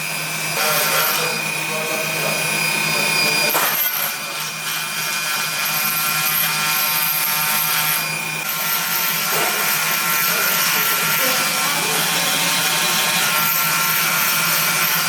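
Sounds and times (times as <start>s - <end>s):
stone grinding machine whine: 0.0s - 15.0s.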